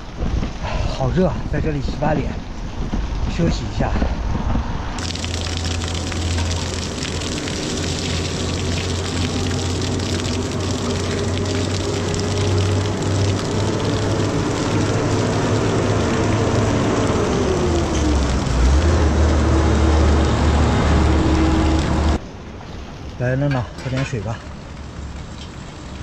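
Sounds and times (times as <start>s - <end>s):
water running: 5.0s - 22.2s.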